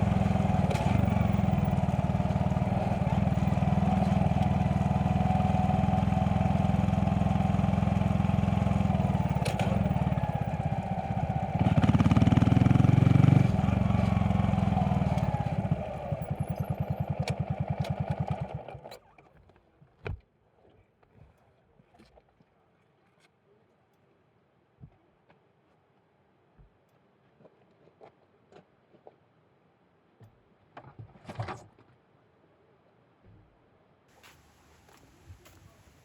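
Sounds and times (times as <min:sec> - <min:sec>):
motorcycle engine idling and revving: 0:00.0 - 0:19.2.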